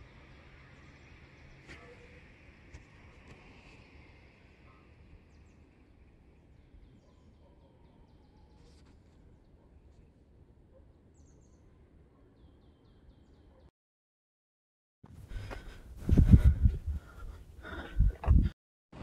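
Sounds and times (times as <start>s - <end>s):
small birds chirping: 3.7s - 13.7s.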